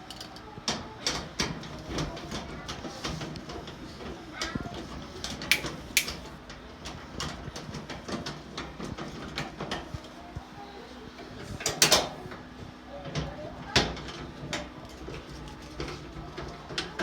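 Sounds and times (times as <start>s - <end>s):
clicks and knocks of parts: 5.5s - 6.2s.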